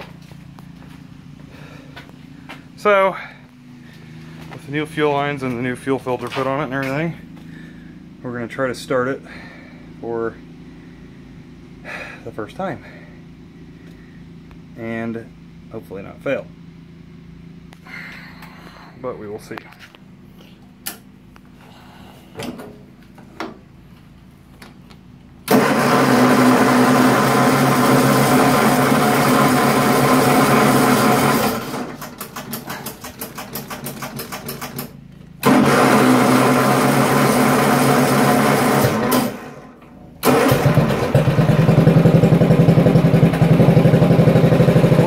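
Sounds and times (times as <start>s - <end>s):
tractor engine running: 0.0s - 45.0s
tractor engine cranking: 25.4s - 45.0s.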